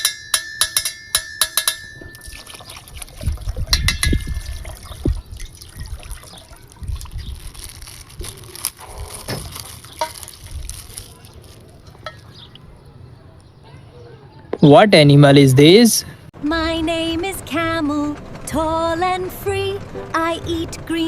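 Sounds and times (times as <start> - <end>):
water pouring and sloshing: 2.0 - 12.6.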